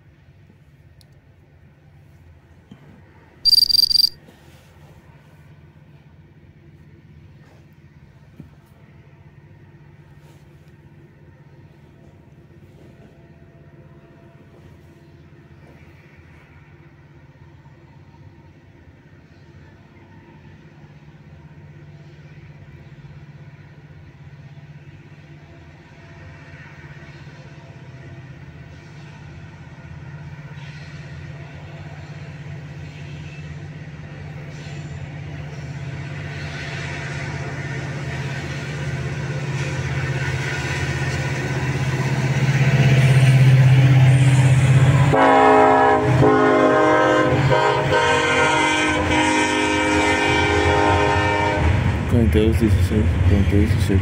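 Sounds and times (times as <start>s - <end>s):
diesel locomotive engine hum: 0.0s - 54.0s
train horn: 45.0s - 52.0s.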